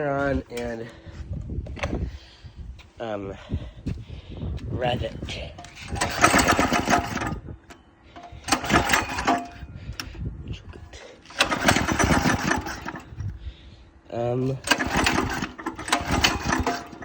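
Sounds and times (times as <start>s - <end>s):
engine pull-start sputtering: 5.6s - 10.2s, 11.2s - 13.3s, 14.5s - 17.0s.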